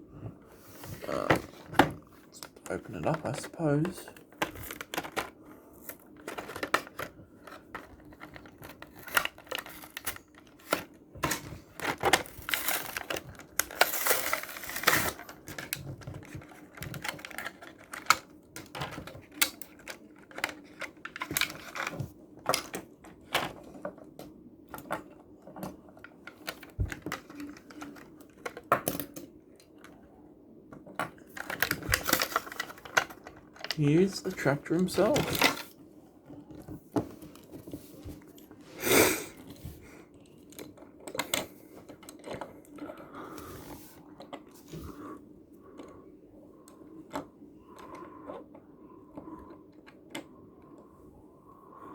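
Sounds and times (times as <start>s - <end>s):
plastic packaging being torn open: 8.5s - 15.8s.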